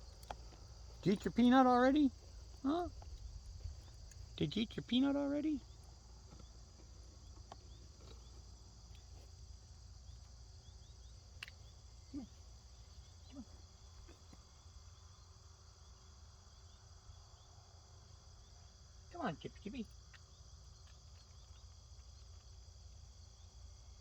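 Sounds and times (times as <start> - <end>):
faint ticks: 0.0 - 1.4
crickets chirring: 0.0 - 24.0.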